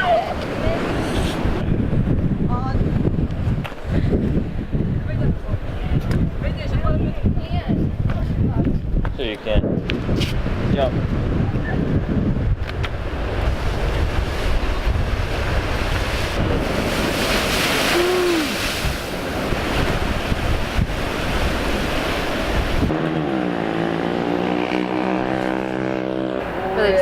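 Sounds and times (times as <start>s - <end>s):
wind buffeting microphone: 0.0s - 23.0s
sea waves washing onto beach: 12.7s - 22.9s.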